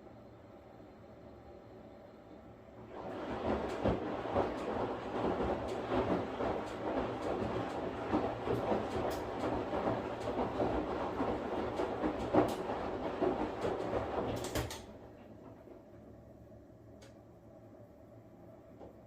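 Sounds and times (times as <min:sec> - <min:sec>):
washing machine low hum: 0:00.0 - 0:19.0
washing machine drum churning: 0:02.8 - 0:16.3.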